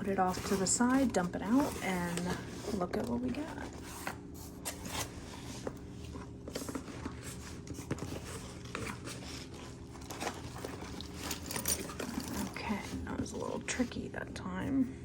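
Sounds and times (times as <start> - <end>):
steady low hum: 0.0 - 15.0
plastic packaging crinkling: 6.1 - 12.7.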